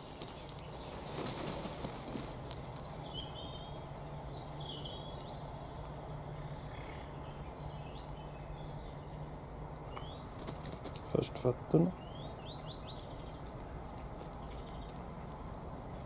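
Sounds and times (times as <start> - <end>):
mist net rustling: 0.0 - 3.3
small bird calling: 0.0 - 11.2.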